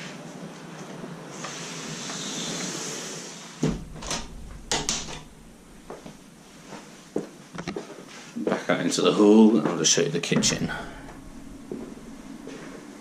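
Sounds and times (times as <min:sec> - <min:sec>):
steady hiss: 0:01.3 - 0:07.1, 0:10.2 - 0:13.0
door thump: 0:03.6 - 0:06.3, 0:10.4 - 0:12.9.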